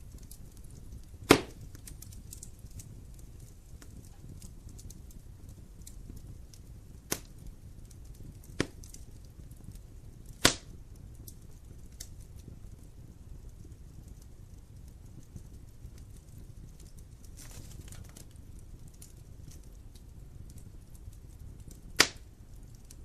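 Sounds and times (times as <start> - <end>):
wood fire crackling: 0.0 - 23.0
logs popping: 0.2 - 4.9, 7.1 - 7.3, 8.4 - 9.0, 10.3 - 10.8, 21.6 - 22.3.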